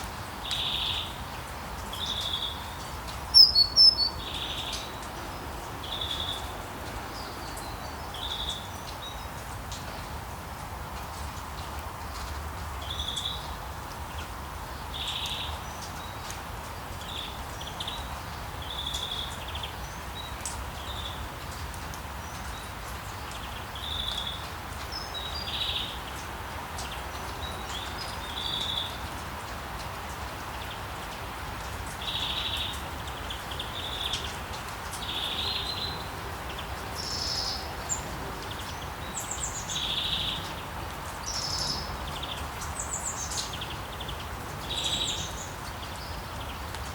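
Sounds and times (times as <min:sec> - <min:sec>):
rain falling: 0:00.0 - 0:46.9
birds chirping: 0:02.0 - 0:08.7.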